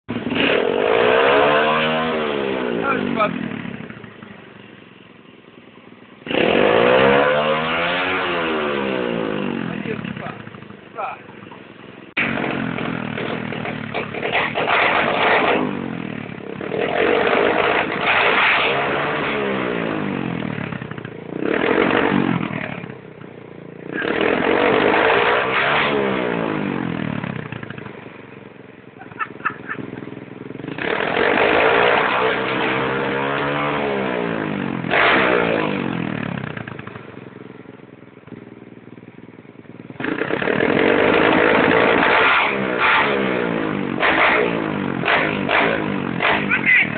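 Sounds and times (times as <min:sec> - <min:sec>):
pit bike engine revving: 0:00.1 - 0:46.9
exhaust pops: 0:09.7 - 0:19.4, 0:43.8 - 0:46.9.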